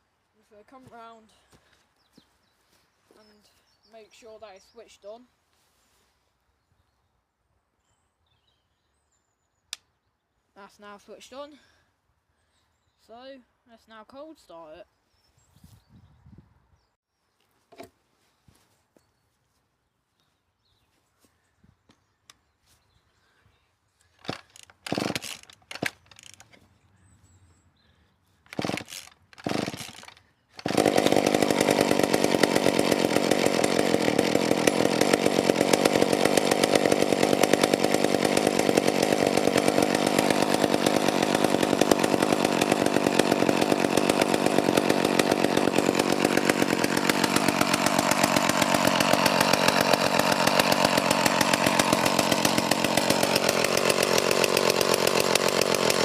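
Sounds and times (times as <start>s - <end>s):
chainsaw engine running: 24.1s - 26.6s, 28.5s - 56.0s
starter cord pulls: 24.2s - 26.6s, 28.5s - 56.0s.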